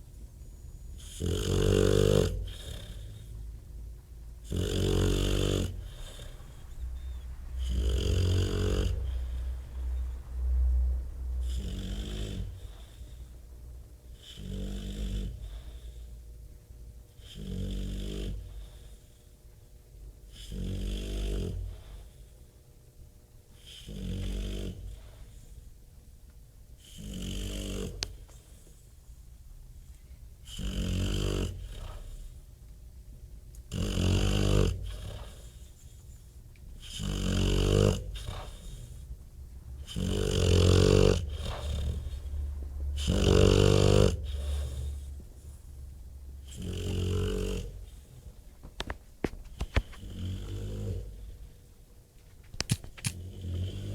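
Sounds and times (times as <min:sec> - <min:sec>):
dog breathing quietly: 0:00.4 - 0:22.7, 0:23.4 - 0:26.0, 0:26.7 - 0:32.8, 0:33.6 - 0:53.9
dog rattling snore: 0:01.0 - 0:03.3, 0:04.4 - 0:09.4, 0:11.4 - 0:13.0, 0:26.8 - 0:28.6, 0:30.5 - 0:32.3, 0:33.7 - 0:36.2, 0:36.8 - 0:39.1, 0:39.8 - 0:45.6, 0:46.4 - 0:51.5, 0:52.3 - 0:53.9.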